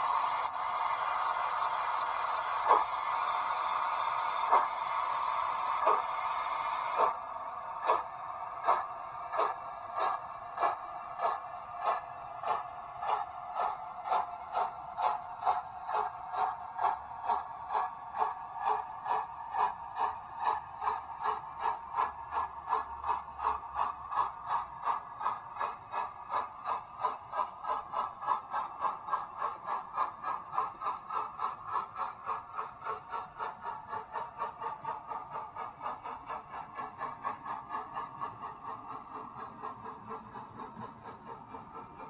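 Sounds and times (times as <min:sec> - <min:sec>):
model train clicking: 0:00.0 - 0:42.0.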